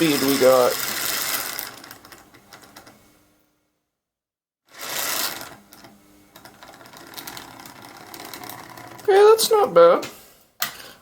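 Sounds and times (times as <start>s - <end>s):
toy train motor buzzing: 0.0s - 2.9s, 4.7s - 9.5s.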